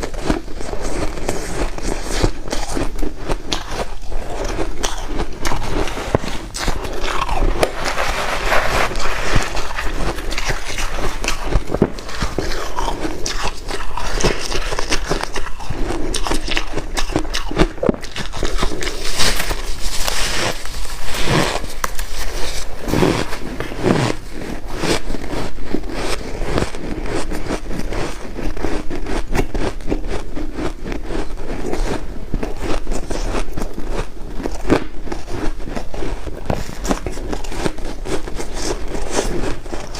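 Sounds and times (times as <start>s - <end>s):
scraping sounds: 0.0s - 30.0s
chewing and crunching ice: 0.0s - 39.9s.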